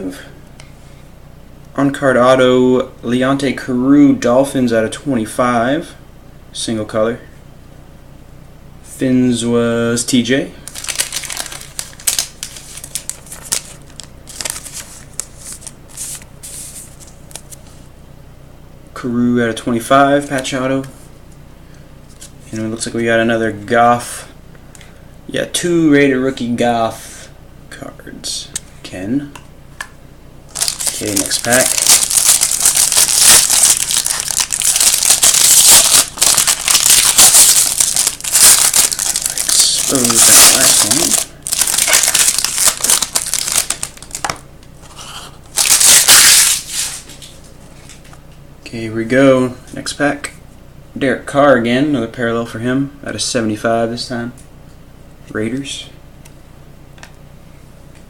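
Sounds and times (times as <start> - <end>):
cards rustling and clicking: 10.7 - 17.7, 30.5 - 48.2.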